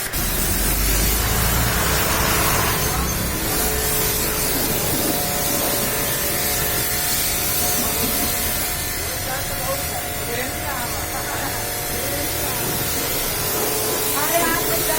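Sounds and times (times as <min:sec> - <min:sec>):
water spray hissing: 0:00.0 - 0:14.9
low rumble: 0:00.2 - 0:08.9.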